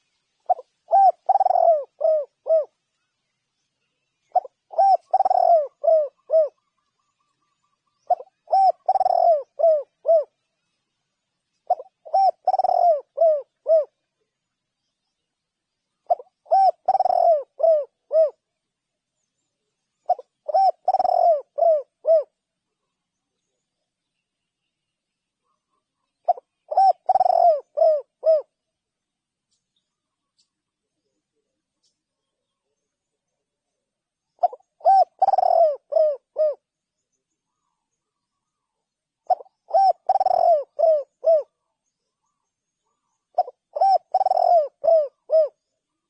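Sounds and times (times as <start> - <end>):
dove cooing: 0.0 - 2.8, 4.2 - 10.4, 11.6 - 14.0, 16.0 - 18.5, 20.0 - 22.4, 25.4 - 28.6, 34.3 - 36.7, 37.5 - 46.0.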